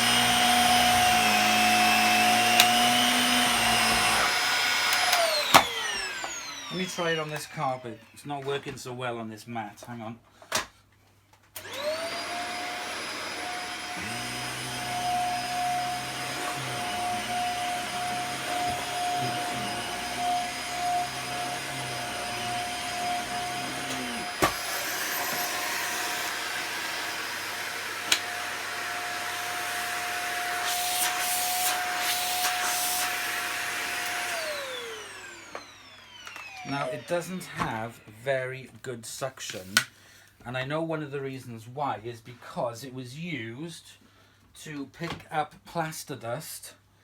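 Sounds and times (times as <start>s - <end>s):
vacuum cleaner motor whine: 0.0s - 8.2s, 11.6s - 38.2s.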